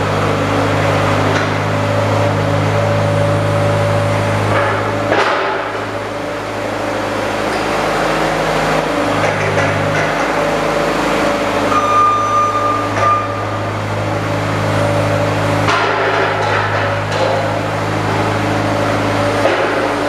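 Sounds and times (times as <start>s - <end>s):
short high-pitched tone: 11.7s - 13.5s.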